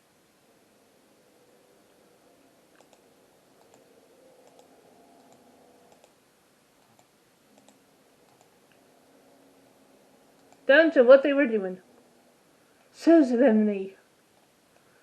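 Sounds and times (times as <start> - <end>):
faint sharp clicks: 2.7 - 3.0, 3.6 - 6.2, 6.8 - 8.8, 10.4 - 10.6.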